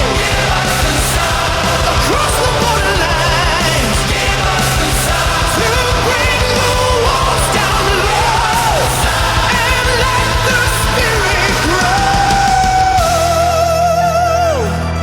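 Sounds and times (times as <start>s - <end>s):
song with backing music: 0.0s - 15.0s.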